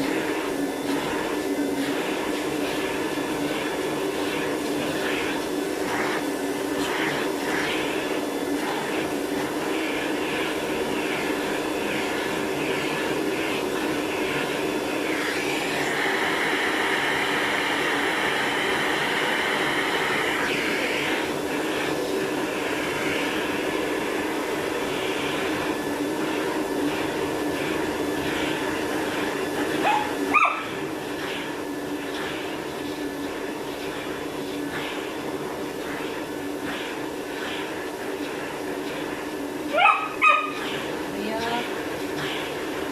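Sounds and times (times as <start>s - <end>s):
vacuum cleaner running: 0.0s - 42.9s
dog yelping: 29.8s - 30.7s, 39.7s - 40.6s.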